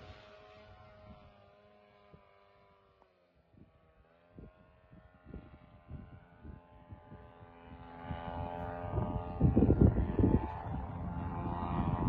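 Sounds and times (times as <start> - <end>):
wind buffeting microphone: 4.4 - 12.0.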